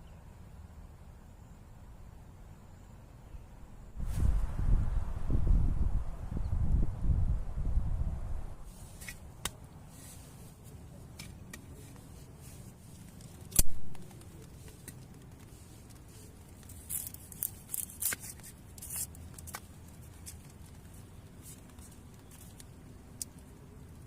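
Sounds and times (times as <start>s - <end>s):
crisp rustling: 8.7s - 24.0s.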